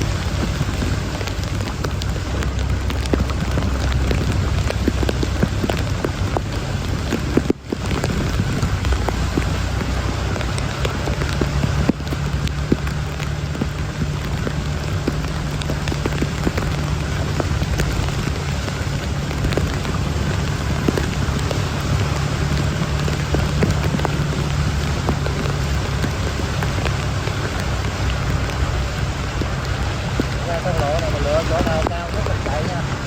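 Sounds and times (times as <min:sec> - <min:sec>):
heavy rain pouring: 0:00.0 - 0:33.0
raindrops hitting near microphone: 0:00.0 - 0:33.0.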